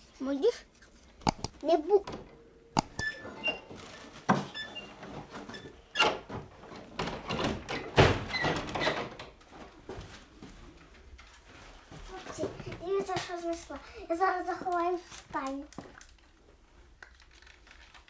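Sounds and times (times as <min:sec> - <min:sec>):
short high squeaks: 0:02.8 - 0:06.2.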